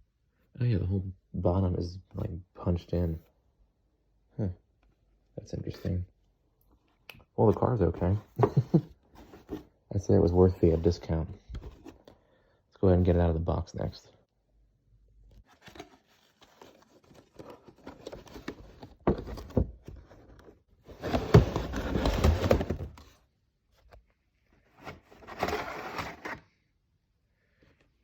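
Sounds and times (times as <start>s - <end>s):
cardboard box scraping: 8.0s - 9.7s, 15.6s - 23.1s, 24.8s - 26.4s.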